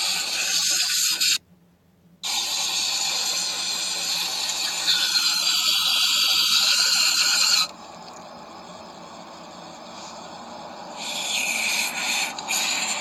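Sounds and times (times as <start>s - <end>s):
aerosol spray hissing: 2.3s - 7.6s, 9.9s - 13.0s.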